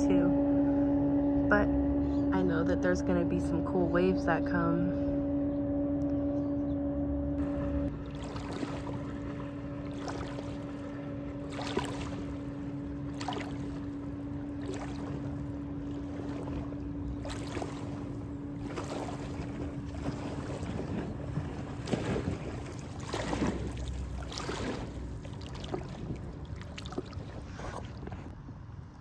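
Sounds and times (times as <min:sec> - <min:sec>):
motorboat engine droning: 0:00.0 - 0:29.0
waves splashing against bank: 0:07.4 - 0:28.3.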